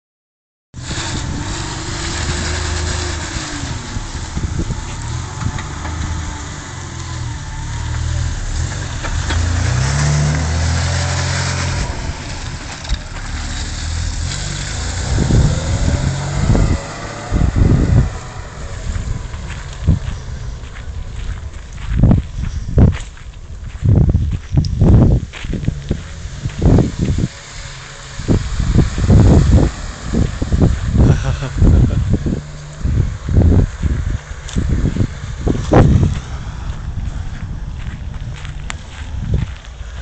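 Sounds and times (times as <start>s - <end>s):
vehicle engine driving away: 0.8s - 40.0s
short low thumps: 15.0s - 27.3s.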